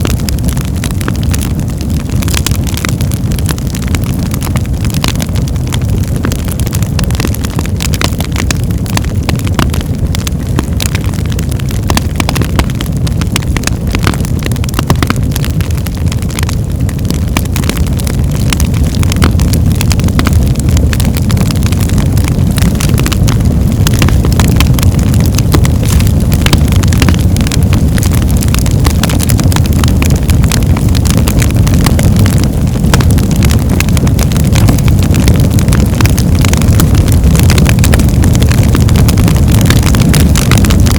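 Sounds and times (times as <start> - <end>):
wood fire roaring and crackling: 0.0 - 40.9.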